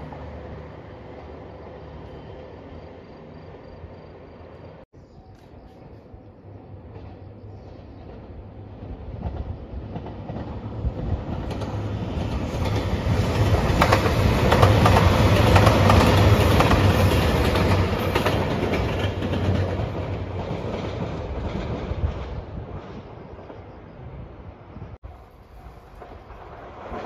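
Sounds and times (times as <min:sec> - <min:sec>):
diesel train engines droning: 0:00.0 - 0:27.0
wheels clacking over rail joints: 0:06.9 - 0:23.7, 0:25.1 - 0:27.0.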